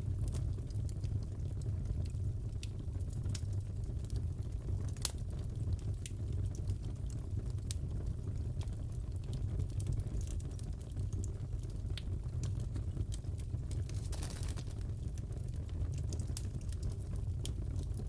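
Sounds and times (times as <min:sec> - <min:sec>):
fire popping and snapping: 0:00.0 - 0:18.0
fireplace crackling: 0:08.7 - 0:18.0.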